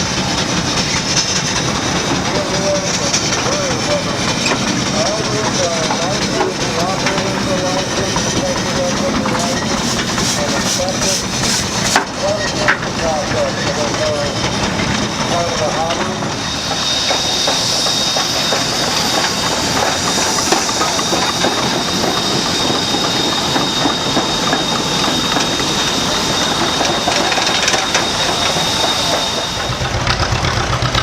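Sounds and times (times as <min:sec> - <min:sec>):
hiss of steam: 0:00.0 - 0:30.1
engine idling: 0:00.0 - 0:31.0
dense mechanical clatter: 0:26.6 - 0:31.0.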